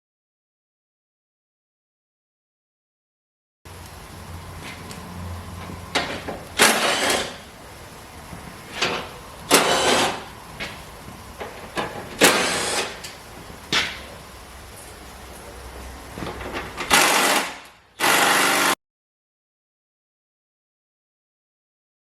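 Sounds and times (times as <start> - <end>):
rattling power tool bursts: 6.6 - 7.5, 8.8 - 10.3, 12.2 - 13.1, 16.8 - 18.8.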